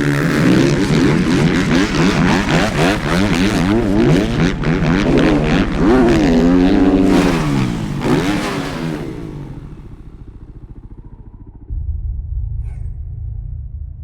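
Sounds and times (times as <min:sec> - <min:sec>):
motocross bike engines revving: 0:00.0 - 0:11.7
loud low rumble: 0:10.2 - 0:14.0.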